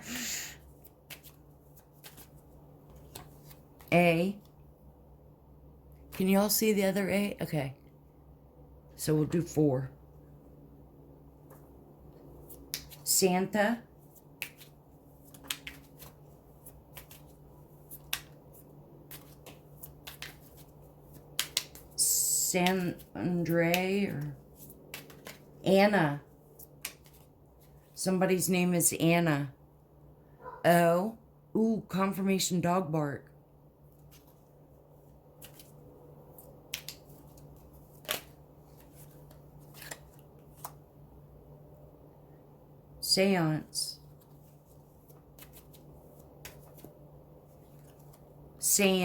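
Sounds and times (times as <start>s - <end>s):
faint steady hum: 0.0s - 49.0s
letter pieces clicking on table: 21.3s - 21.8s.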